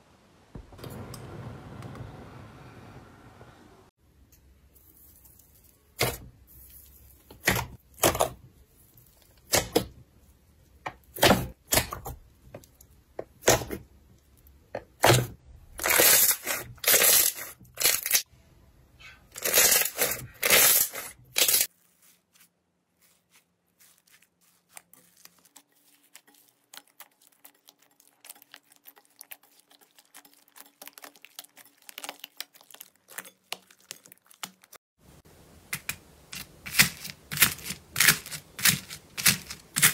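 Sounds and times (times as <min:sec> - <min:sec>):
slime crackling and tearing: 0:23.0 - 0:34.8.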